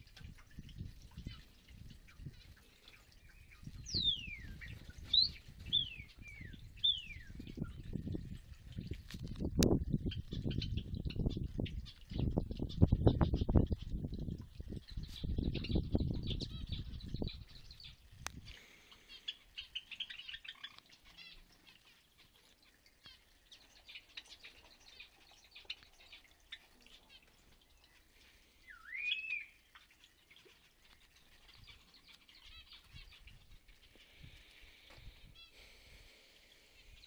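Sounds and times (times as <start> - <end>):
small birds chirping: 0.0 - 37.0
rising whistled bird call: 28.6 - 29.6.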